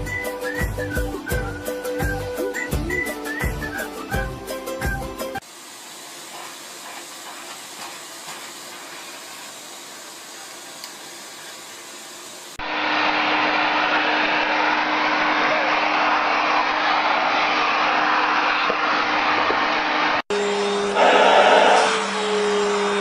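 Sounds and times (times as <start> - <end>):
vacuum cleaner motor running: 5.4 - 23.0.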